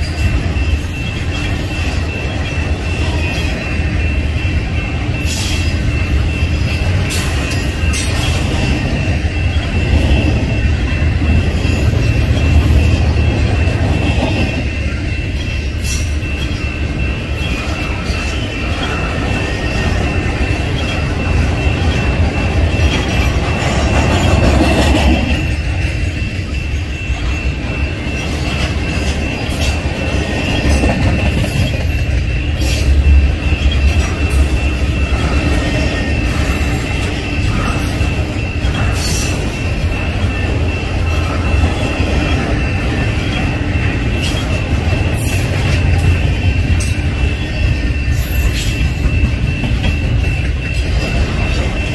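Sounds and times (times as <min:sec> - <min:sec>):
high squeal: 0:00.0 - 0:51.9
train wheels rumbling on rails: 0:00.0 - 0:51.9.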